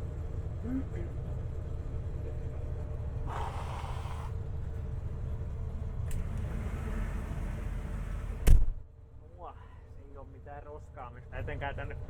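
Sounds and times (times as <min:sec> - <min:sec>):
combine harvester drone in cab: 0:00.0 - 0:08.7
short hiss: 0:03.3 - 0:04.4.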